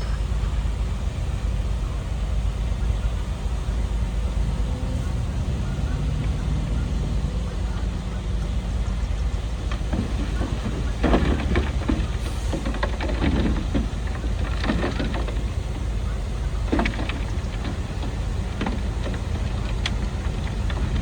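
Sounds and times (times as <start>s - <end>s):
diesel machinery rumbling: 0.0s - 21.0s
clattering and scraping: 9.4s - 21.0s.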